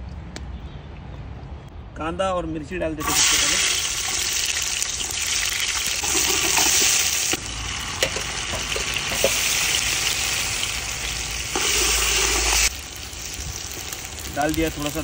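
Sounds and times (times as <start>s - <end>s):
vegetables sizzling in hot oil: 3.0s - 15.0s.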